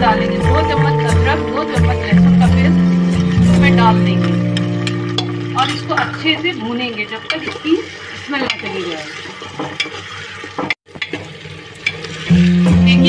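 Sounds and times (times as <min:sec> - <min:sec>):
food sizzling in oil: 0:00.0 - 0:13.0
metal spoon scraping a pot: 0:02.9 - 0:06.4, 0:07.2 - 0:11.2.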